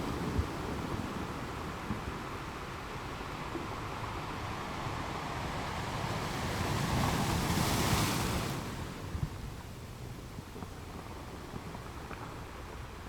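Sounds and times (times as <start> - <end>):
waves crashing on rocky shore: 4.0 - 9.1.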